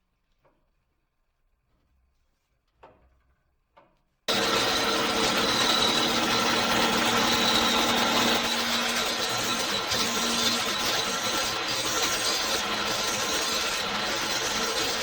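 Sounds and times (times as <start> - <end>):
power tool whining: 4.3 - 15.0.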